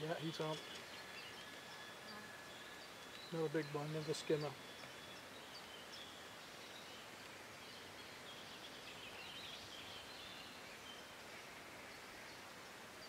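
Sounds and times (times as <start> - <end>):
background hiss: 0.0 - 13.0
small birds chirping: 0.0 - 13.0.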